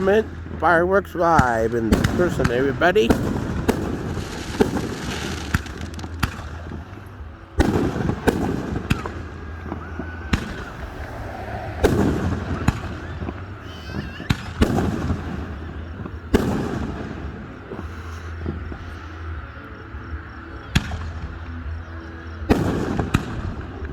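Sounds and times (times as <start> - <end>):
fireworks bangs: 0.0 - 18.8, 22.5 - 23.8
low rumbling echo: 7.6 - 13.8.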